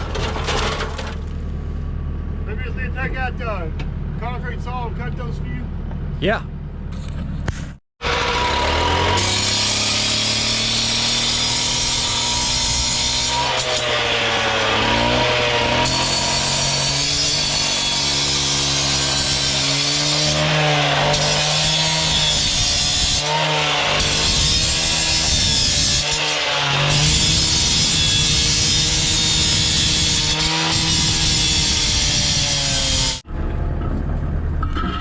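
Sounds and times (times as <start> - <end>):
concrete saw cutting: 8.0 - 33.3.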